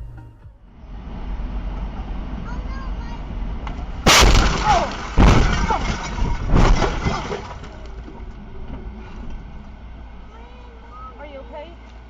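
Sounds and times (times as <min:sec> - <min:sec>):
vehicle and road noise: 0:00.0 - 0:12.0
car crash impact: 0:03.6 - 0:08.2
smashing and breaking: 0:04.1 - 0:07.9.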